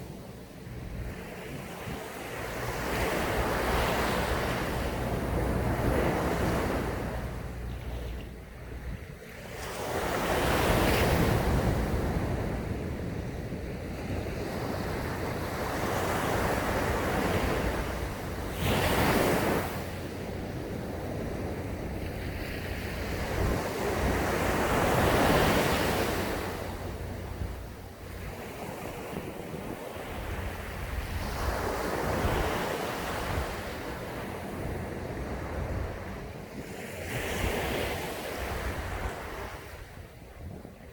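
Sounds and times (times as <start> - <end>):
waves breaking on a beach: 0.0 - 40.9.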